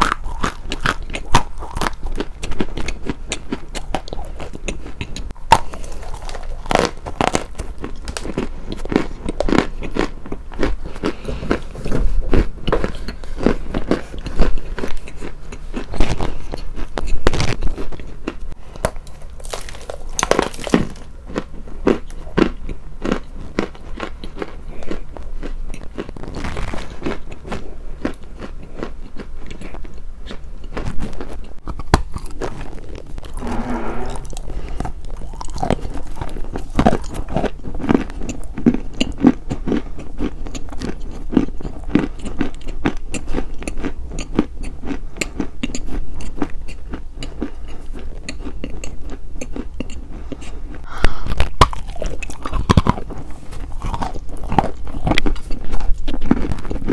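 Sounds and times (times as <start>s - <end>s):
crunchy biting and chewing: 0.0s - 56.9s
person humming mm: 50.9s - 51.4s.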